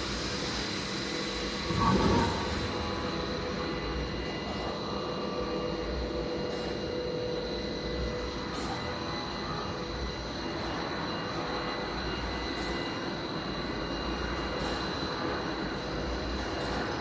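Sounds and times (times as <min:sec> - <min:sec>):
machine humming and rumbling: 0:00.0 - 0:05.3
high-pitched machine whines: 0:00.0 - 0:17.0.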